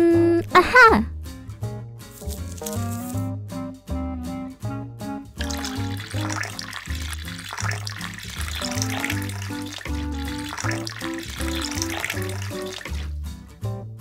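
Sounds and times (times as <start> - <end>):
bouncy background music: 0.0 - 14.0
running water: 5.4 - 13.2.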